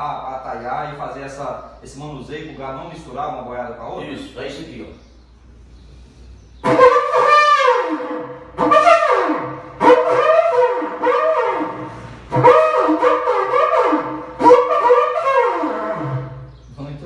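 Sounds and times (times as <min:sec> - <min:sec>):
cattle horn blasts sagging in pitch: 0:06.6 - 0:16.6.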